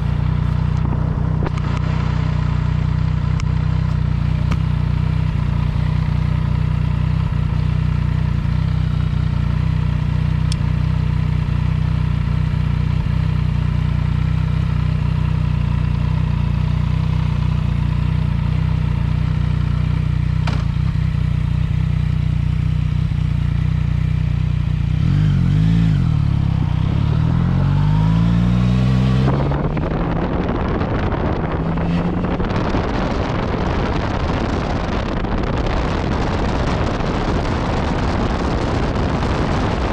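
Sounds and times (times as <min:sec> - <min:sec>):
motorcycle engine revving: 0:00.0 - 0:39.9
wind rush on microphone: 0:25.9 - 0:39.9.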